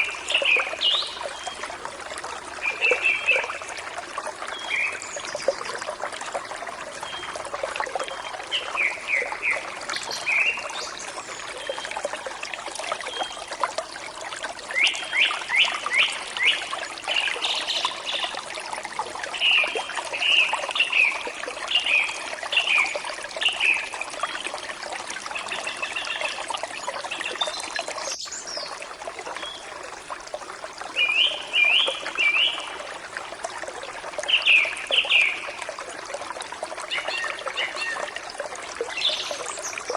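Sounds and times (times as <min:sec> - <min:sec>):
songbirds singing: 0:00.0 - 0:06.1, 0:06.7 - 0:12.3, 0:12.9 - 0:13.6, 0:14.7 - 0:18.6, 0:19.2 - 0:24.7, 0:25.3 - 0:29.8, 0:30.9 - 0:33.0, 0:34.1 - 0:35.9, 0:36.8 - 0:39.9
stream flowing: 0:00.0 - 0:39.9.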